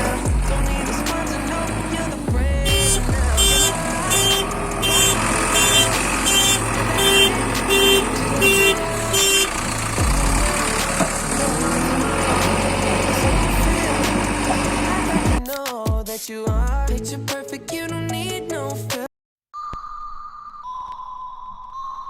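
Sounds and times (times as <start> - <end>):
heavy machinery engine running: 0.0 - 15.4
pulsing beep: 2.6 - 9.5.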